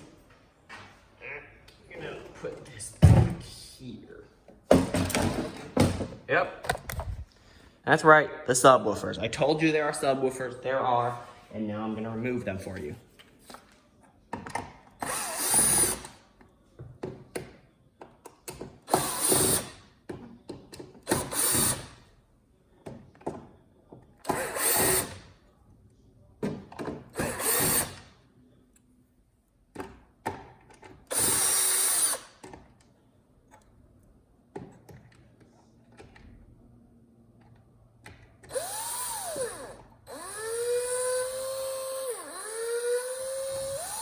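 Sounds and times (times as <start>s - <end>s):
power drill bursts: 15.0s - 16.1s, 18.9s - 19.8s, 21.1s - 21.9s, 24.3s - 25.2s, 27.2s - 28.0s, 31.1s - 32.3s, 38.5s - 44.0s.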